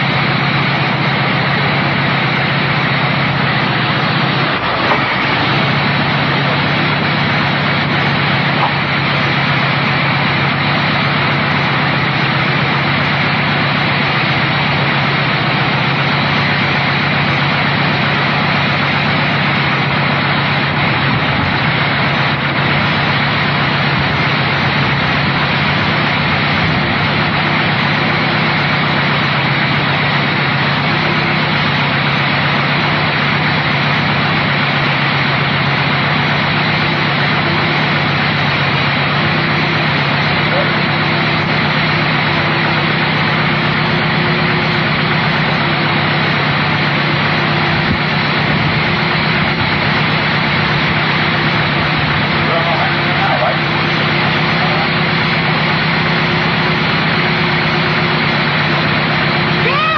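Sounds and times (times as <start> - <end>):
buggy engine running steadily: 0.0 - 59.9.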